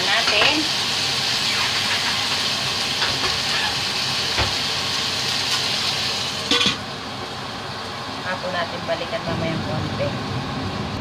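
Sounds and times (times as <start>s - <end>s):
chicken sizzling in oil: 0.0s - 8.2s
lid clanking onto wok: 6.5s - 6.8s.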